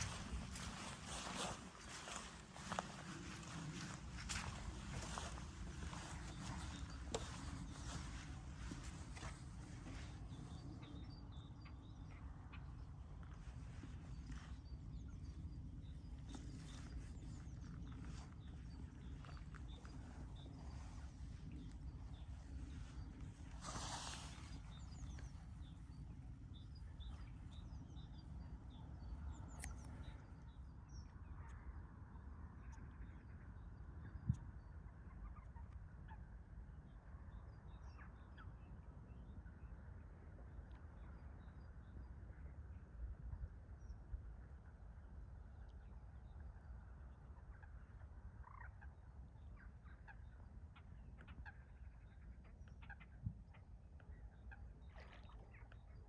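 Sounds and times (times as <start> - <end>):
rustle: 23.6 - 25.1.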